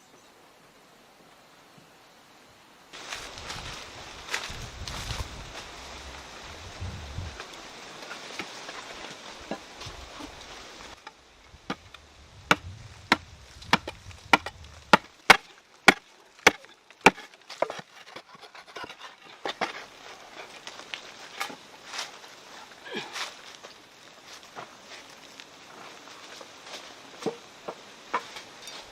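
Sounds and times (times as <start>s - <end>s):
wood chopping strikes: 11.7s - 19.8s.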